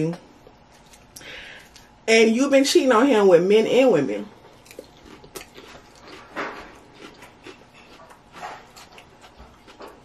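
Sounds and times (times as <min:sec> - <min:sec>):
person chewing salad: 0:00.6 - 0:02.0, 0:04.4 - 0:10.0.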